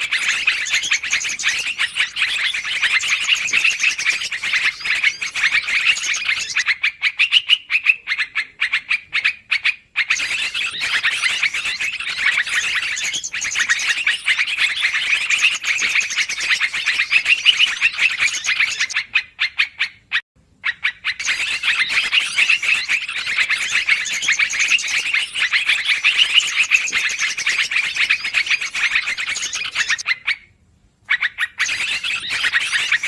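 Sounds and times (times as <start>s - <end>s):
bulbul rapid chattering call: 0.0s - 9.3s, 21.2s - 30.0s.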